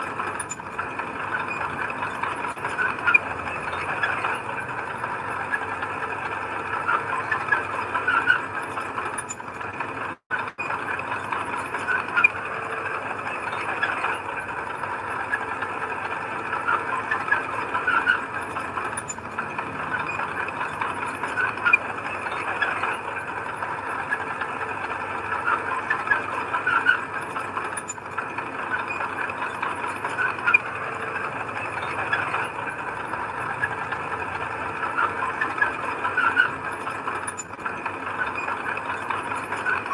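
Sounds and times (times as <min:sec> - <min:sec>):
bulldozer engine running: 0:00.0 - 0:39.9
steel tracks squealing and clanking: 0:00.0 - 0:39.9.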